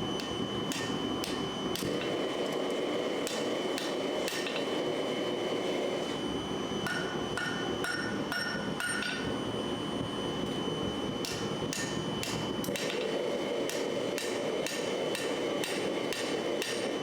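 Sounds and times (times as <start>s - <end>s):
hammer striking steel on anvil: 0.2s - 2.1s, 3.2s - 4.7s, 6.8s - 9.3s, 11.2s - 16.9s.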